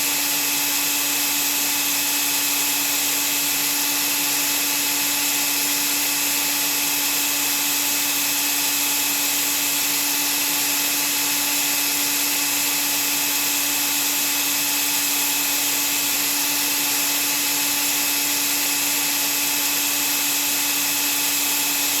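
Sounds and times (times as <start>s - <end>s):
vacuum cleaner motor running: 0.0s - 22.0s.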